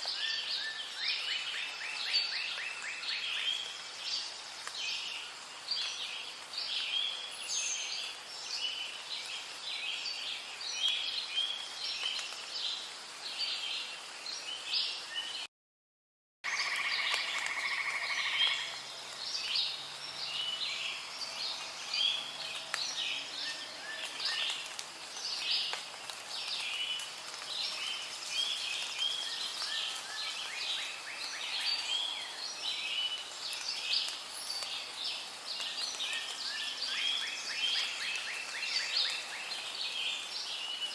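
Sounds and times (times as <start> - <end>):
frogs calling: 16.5 - 18.9.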